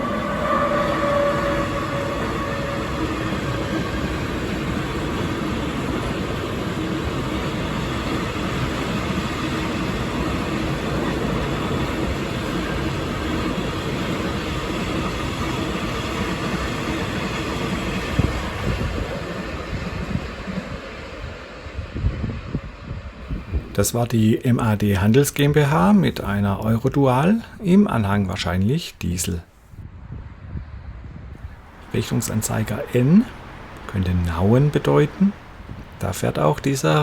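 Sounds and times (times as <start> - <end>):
freight train wagons rolling: 0.0 - 19.5, 31.4 - 37.0.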